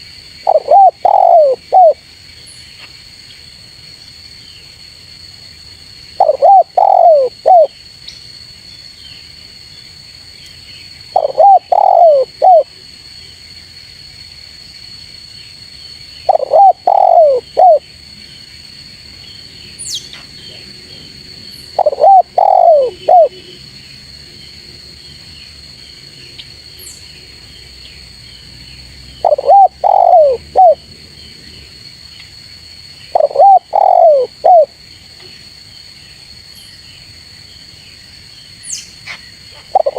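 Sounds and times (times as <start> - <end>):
dove cooing: 0.5 - 2.0, 6.2 - 7.7, 11.1 - 12.7, 16.3 - 17.8, 21.8 - 23.5, 29.2 - 30.8, 33.1 - 34.7, 39.6 - 39.9.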